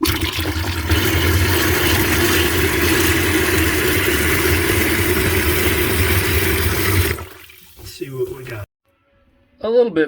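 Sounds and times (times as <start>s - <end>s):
water rushing from valve: 0.0s - 8.7s.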